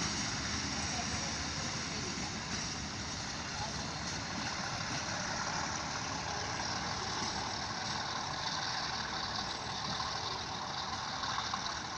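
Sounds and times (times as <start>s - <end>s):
train rumble and hiss: 0.0s - 11.9s.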